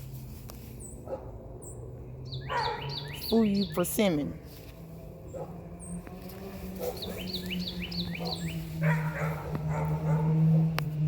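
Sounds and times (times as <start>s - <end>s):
dog barking: 1.0s - 1.4s, 2.5s - 3.0s, 5.3s - 5.6s, 6.8s - 7.3s, 8.2s - 10.8s
bird chirping: 1.6s - 4.3s, 5.2s - 10.4s.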